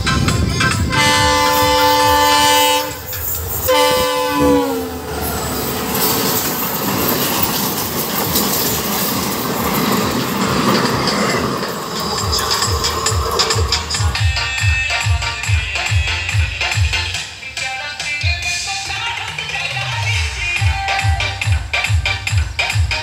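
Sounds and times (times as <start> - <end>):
train wheels rattling on rails: 0.0 - 15.2
locomotive horn: 0.8 - 5.3, 14.0 - 17.3.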